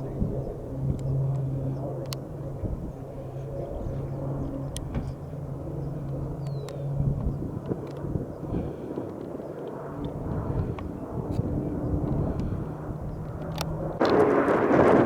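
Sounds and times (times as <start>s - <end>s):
low steady hum: 0.0s - 8.9s
vehicle engine running: 0.0s - 8.9s, 10.0s - 15.0s
scattered clicks: 0.9s - 2.3s, 6.1s - 6.8s, 7.6s - 8.1s, 13.1s - 14.6s.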